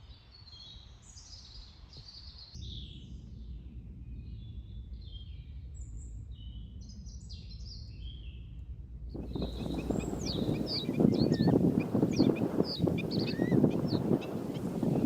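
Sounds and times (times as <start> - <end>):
low outdoor rumble: 2.8 - 15.0
songbirds chirping: 9.2 - 15.0.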